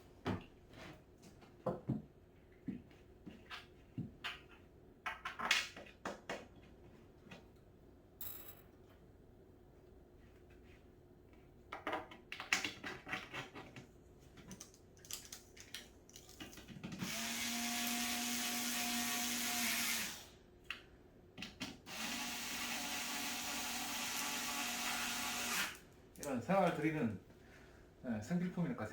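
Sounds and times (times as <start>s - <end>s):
cordless drill driving screws: 17.0s - 20.3s, 21.9s - 25.8s.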